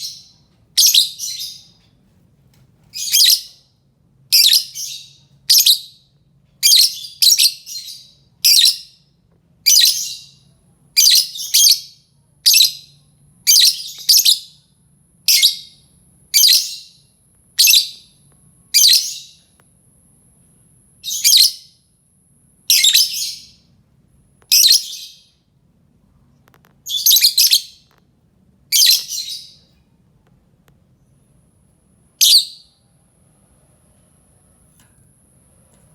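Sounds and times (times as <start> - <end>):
lovebird shrill calls: 28.7 - 29.6.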